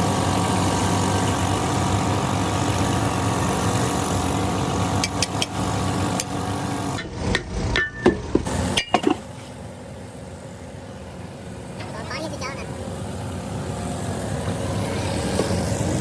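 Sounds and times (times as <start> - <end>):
engine running steadily: 0.0 - 16.0
sharp knocks on metal: 7.3 - 9.2.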